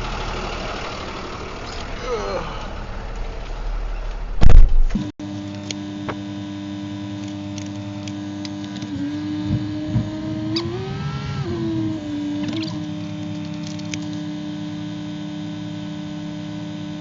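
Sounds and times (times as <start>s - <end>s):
mechanical vehicle hum: 0.0s - 17.0s
loud thump: 4.4s - 5.1s.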